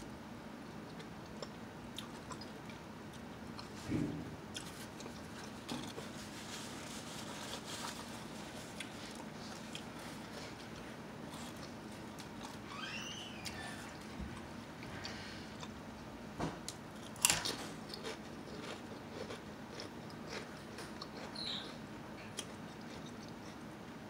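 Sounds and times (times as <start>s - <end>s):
potato chips crunching: 17.0s - 23.5s.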